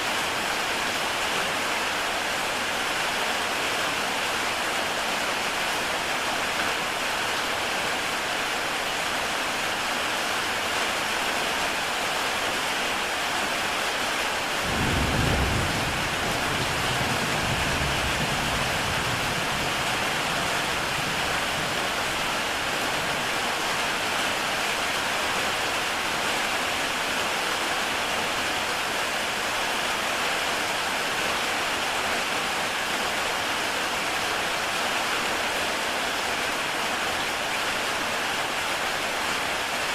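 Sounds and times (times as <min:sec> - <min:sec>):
heavy rain on a tile roof: 0:00.0 - 0:39.9
low rumble of thunder: 0:14.7 - 0:21.8.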